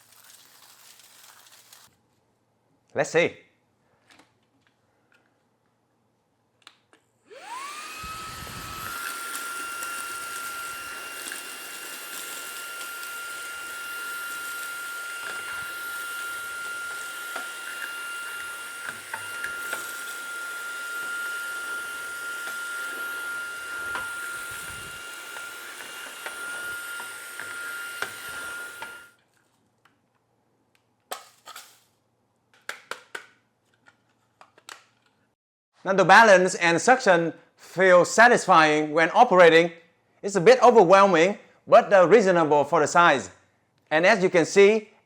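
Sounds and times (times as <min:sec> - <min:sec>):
cornflakes crackling in vacuum: 0:00.0 - 0:01.9
handheld vacuum motor whining: 0:07.3 - 0:29.2.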